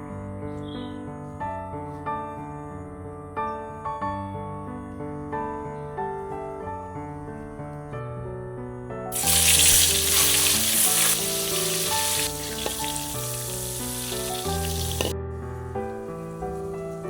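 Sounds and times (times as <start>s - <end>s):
soft piano music: 0.0s - 17.0s
food sizzling in hot oil: 9.1s - 15.1s.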